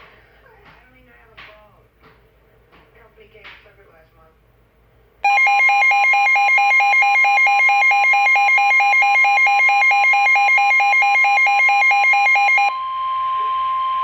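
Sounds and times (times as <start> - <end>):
rapid alert beeping: 5.2 - 12.7
steady alert tone: 5.2 - 12.7.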